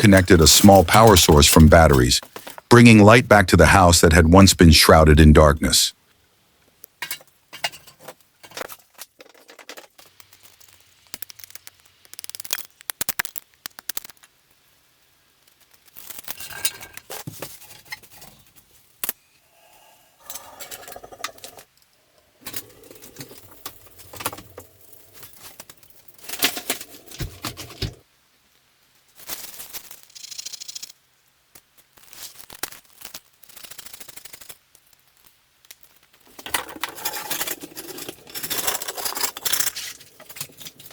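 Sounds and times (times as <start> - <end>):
clicks rattles and scrapes: 7.0 - 14.2, 22.4 - 28.0, 36.2 - 40.9.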